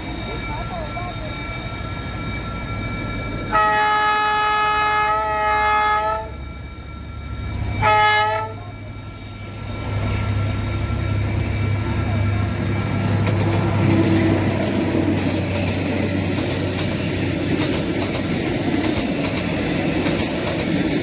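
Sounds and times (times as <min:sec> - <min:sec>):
locomotive air horn blasts: 0:03.5 - 0:06.4, 0:07.8 - 0:08.6.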